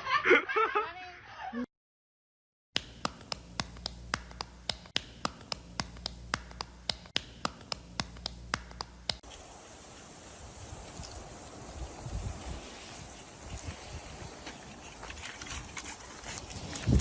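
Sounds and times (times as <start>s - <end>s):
steady hiss: 9.2s - 15.0s.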